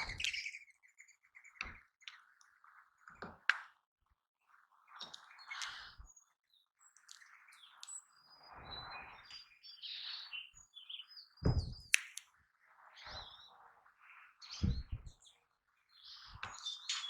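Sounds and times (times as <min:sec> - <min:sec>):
birds chirping: 0:00.0 - 0:03.2, 0:04.5 - 0:17.0
sharp clicks: 0:11.9 - 0:12.3
low thumps: 0:14.6 - 0:15.1.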